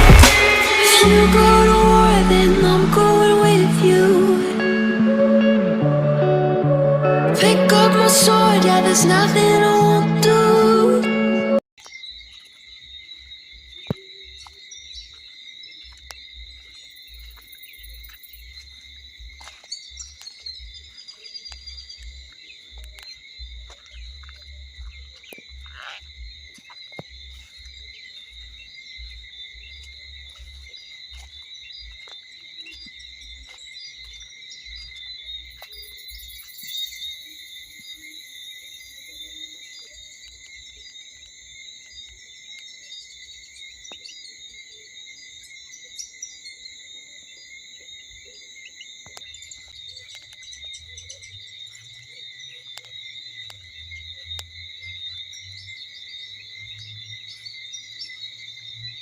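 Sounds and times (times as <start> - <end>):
insects chirring: 11.8 - 59.0.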